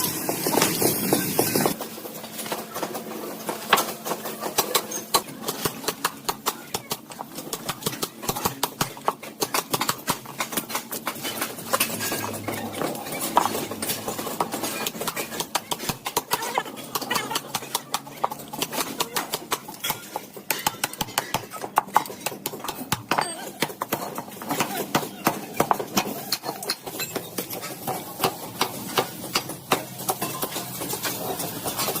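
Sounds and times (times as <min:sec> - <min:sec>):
rapid irregular clicking and knocking: 0:00.2 - 0:32.0.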